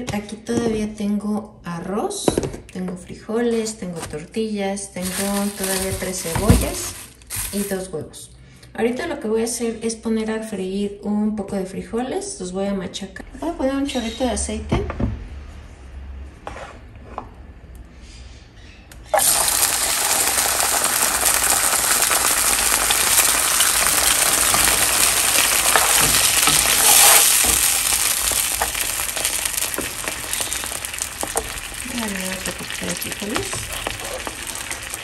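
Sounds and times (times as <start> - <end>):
beans sizzling in hot oil: 19.1 - 35.0
spatula stirring in pan: 23.7 - 35.0.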